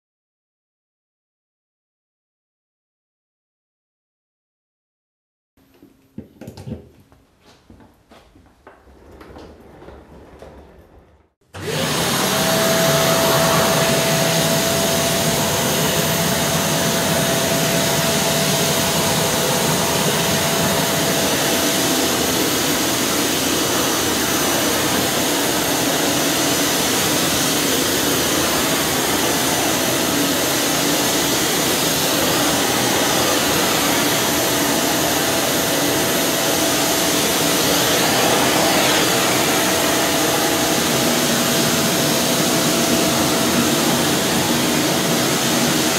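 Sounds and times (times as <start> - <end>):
vacuum cleaner running: 11.4 - 45.9.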